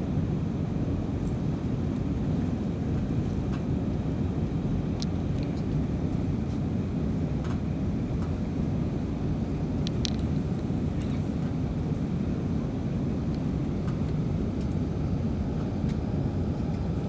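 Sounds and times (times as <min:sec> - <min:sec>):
jet airliner rumble: 0:00.0 - 0:17.0.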